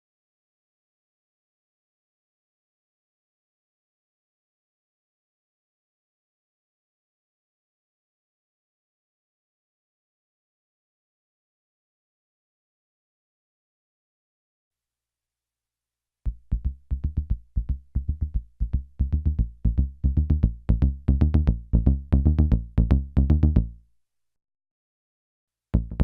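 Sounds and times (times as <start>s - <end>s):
plucky synthesizer bass notes: 16.3s - 23.8s, 25.8s - 26.0s.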